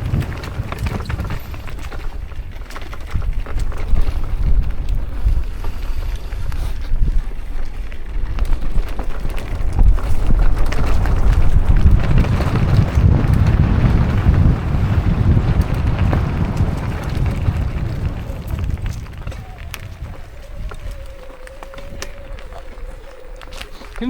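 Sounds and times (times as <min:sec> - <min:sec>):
clicks and knocks from riding: 0:00.0 - 0:24.0
wind buffeting microphone: 0:00.0 - 0:24.0.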